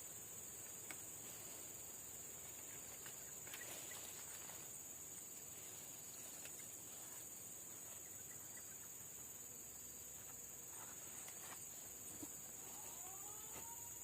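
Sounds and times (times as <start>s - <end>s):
insect chorus drone: 0.0s - 14.0s
faint ticks: 0.6s - 1.1s.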